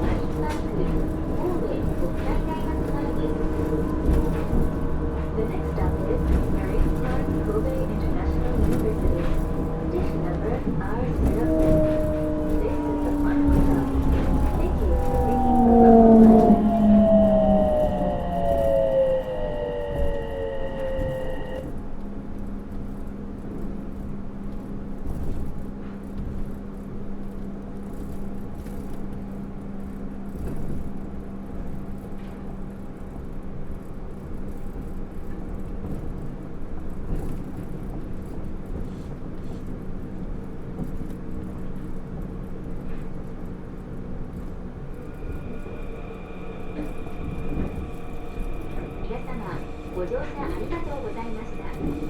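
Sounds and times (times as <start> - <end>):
train tyres rumbling on guideway: 0.0 - 52.0.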